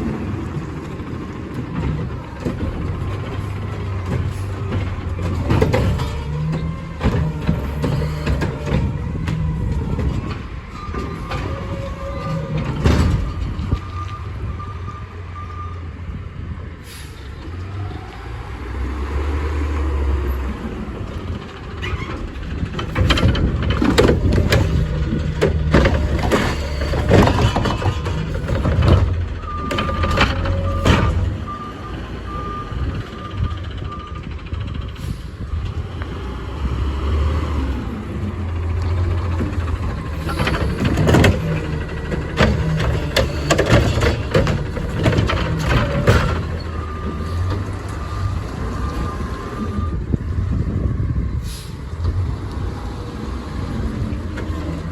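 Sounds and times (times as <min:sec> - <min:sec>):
diesel engine rumbling and revving: 0:00.0 - 0:54.9
bangs and clatter: 0:04.0 - 0:13.7, 0:21.9 - 0:31.4, 0:39.4 - 0:47.6.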